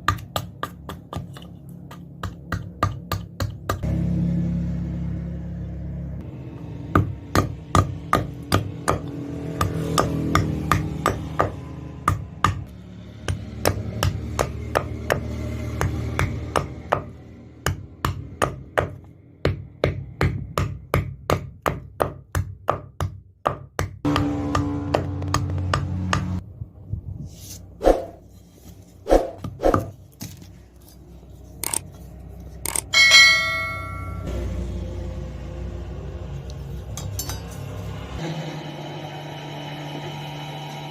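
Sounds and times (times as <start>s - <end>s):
hammer striking metal on anvil: 32.7s - 34.3s, 37.0s - 37.7s.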